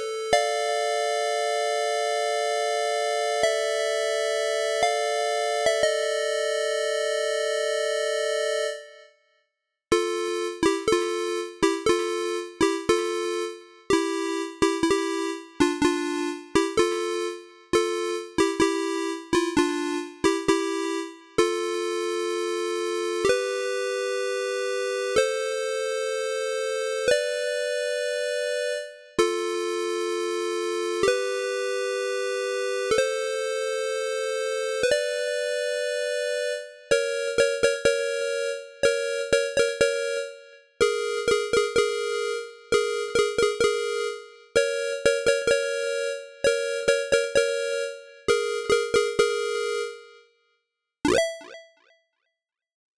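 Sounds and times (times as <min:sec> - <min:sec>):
synthesizer chords: 0:51.1 - 0:51.7.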